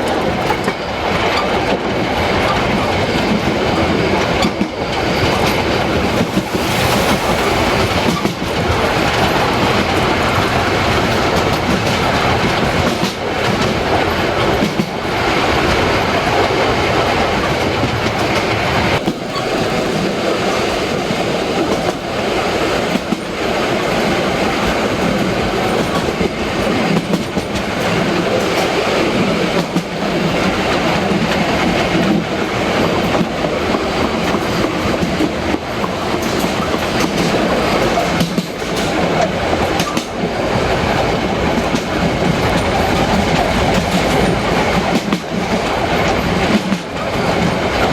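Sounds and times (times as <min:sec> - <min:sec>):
wheels clattering over rail joints: 0:00.0 - 0:22.0
steam train rumbling: 0:00.0 - 0:47.9.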